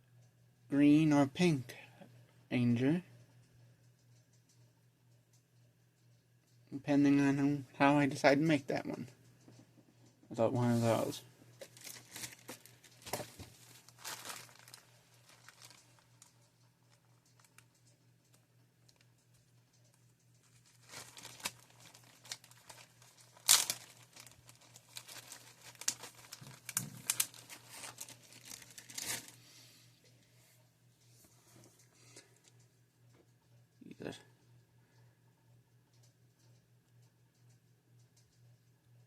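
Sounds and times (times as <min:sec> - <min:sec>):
plastic toy parts crinkling: 0:10.9 - 0:29.4.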